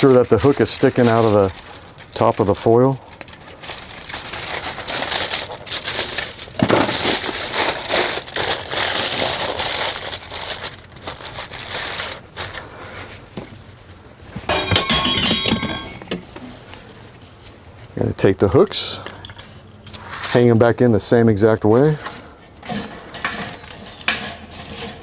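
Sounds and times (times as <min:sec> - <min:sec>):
aluminium foil crinkling: 0:00.0 - 0:13.3
metallic clinking: 0:14.5 - 0:16.4.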